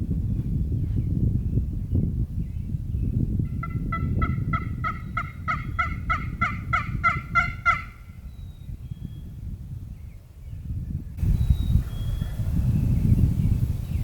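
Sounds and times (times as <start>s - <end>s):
turkey yelps: 3.6s - 8.0s.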